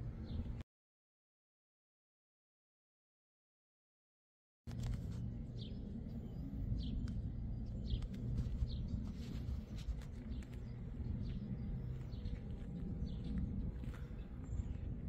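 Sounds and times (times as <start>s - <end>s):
low steady rumble: 4.7s - 15.0s
small bird chirping: 5.5s - 15.0s
footsteps on pavement: 7.9s - 15.0s.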